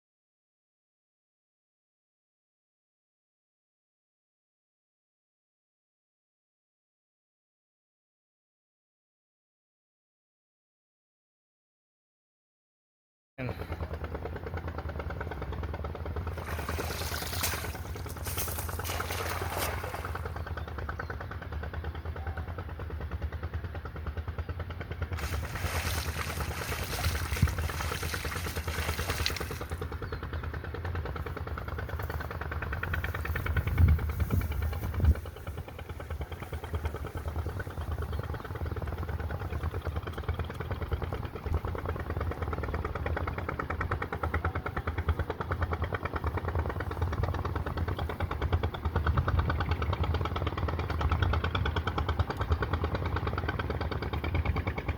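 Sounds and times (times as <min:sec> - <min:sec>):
small engine chugging: 0:13.4 - 0:54.9.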